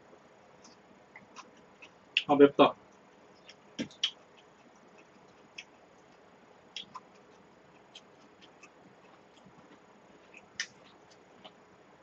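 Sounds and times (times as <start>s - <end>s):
mouth clicks of chewing: 3.4s - 11.6s.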